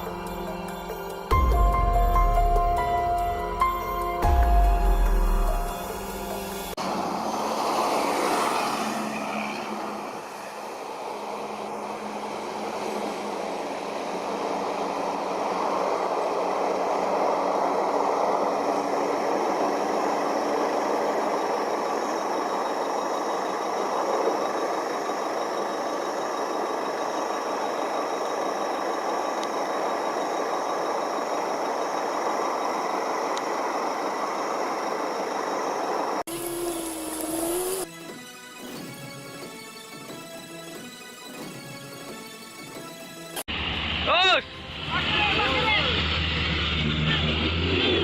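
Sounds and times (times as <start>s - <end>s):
heavy vehicle engine running: 43.5s - 48.0s.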